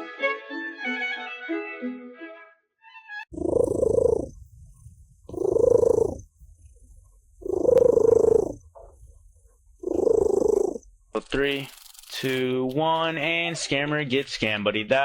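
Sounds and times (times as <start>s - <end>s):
cat purring loudly: 3.3s - 6.4s, 7.4s - 8.7s, 9.8s - 10.9s.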